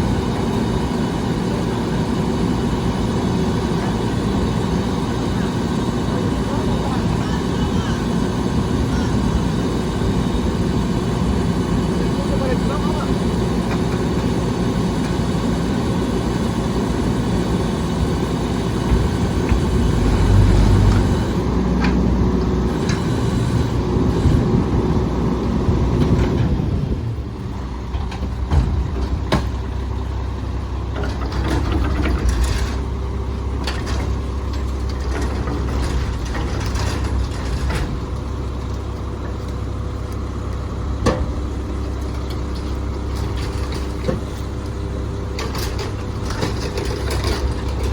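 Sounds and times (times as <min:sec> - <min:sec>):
garbage truck engine and packer: 0:00.0 - 0:47.9
low engine hum: 0:00.0 - 0:47.9
knocks and clanks: 0:27.9 - 0:29.7, 0:41.0 - 0:41.5.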